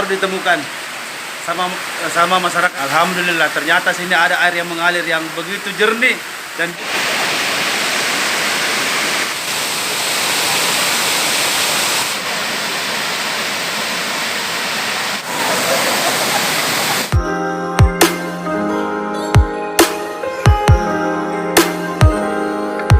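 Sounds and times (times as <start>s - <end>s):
stream rushing: 0.0s - 17.2s
electronic music with heavy beat: 17.1s - 18.6s, 19.3s - 22.9s.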